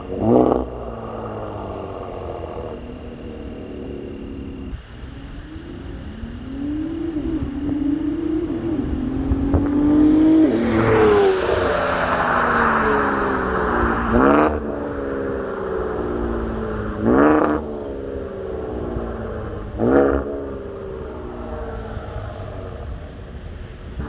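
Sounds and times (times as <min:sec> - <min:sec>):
car engine accelerating hard: 0:06.4 - 0:22.9
loud rush of noise: 0:10.2 - 0:15.6.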